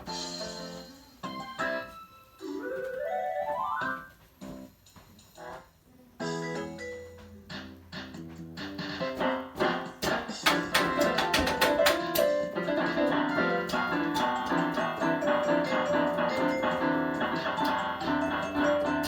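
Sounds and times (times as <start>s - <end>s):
electronic keyboard piano notes: 9.0s - 19.0s.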